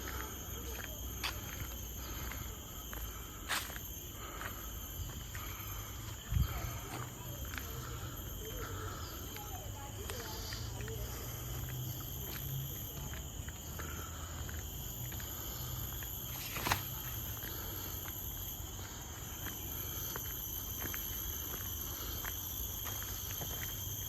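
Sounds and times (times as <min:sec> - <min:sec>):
insects shrilling: 0:00.0 - 0:24.0.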